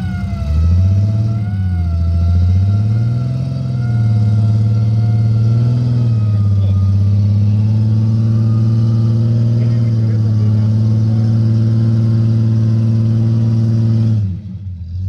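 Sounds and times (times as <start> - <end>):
suv engine revving: 0.0 - 15.0.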